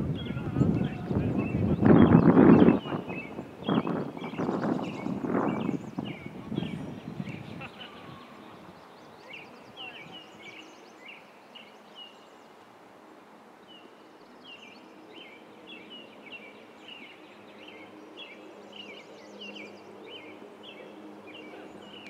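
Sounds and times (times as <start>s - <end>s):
faint outdoor hiss: 0.0s - 22.0s
bird chirping: 0.1s - 12.5s.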